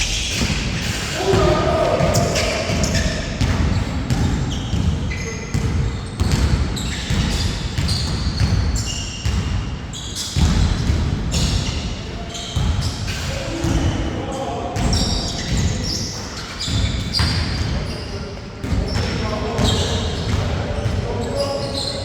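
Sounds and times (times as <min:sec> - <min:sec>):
basketball bouncing on court: 0:00.0 - 0:14.0, 0:14.8 - 0:21.9
shoes squeaking: 0:18.8 - 0:22.0.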